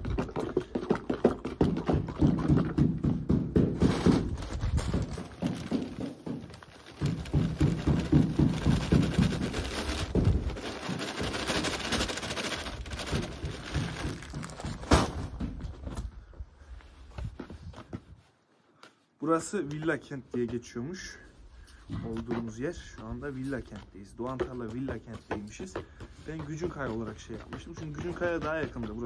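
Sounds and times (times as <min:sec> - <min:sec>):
stirring thick adhesive in bucket: 0:05.1 - 0:14.2, 0:19.6 - 0:29.0.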